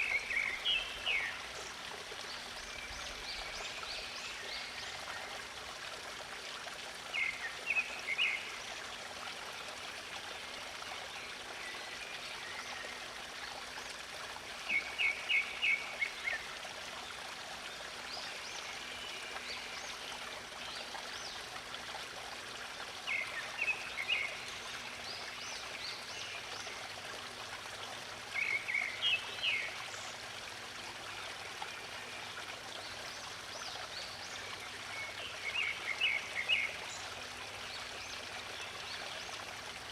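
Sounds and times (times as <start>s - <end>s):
songbird singing: 0.0s - 1.7s, 28.3s - 30.2s, 32.0s - 39.4s
stream running: 0.0s - 39.9s.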